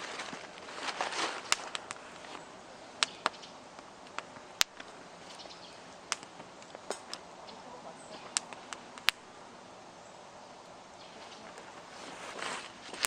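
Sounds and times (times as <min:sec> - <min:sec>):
faint steady hiss: 0:00.0 - 0:13.0
campfire pops and cracks: 0:00.5 - 0:05.0, 0:06.0 - 0:07.3, 0:08.2 - 0:09.3.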